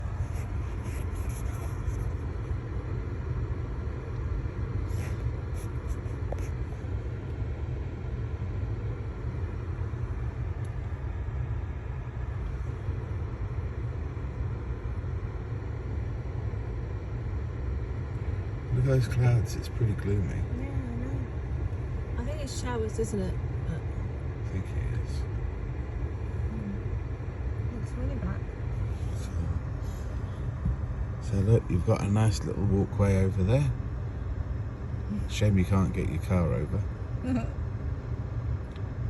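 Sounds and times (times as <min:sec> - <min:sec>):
car idling from inside: 0:00.0 - 0:39.0.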